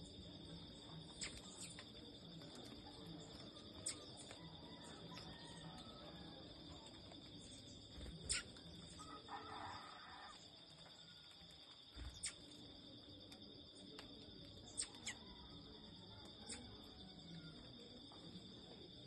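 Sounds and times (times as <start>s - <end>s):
small birds chirping: 0.0s - 6.0s, 6.8s - 9.1s, 11.9s - 12.9s, 14.0s - 15.5s
insects droning: 0.0s - 19.0s.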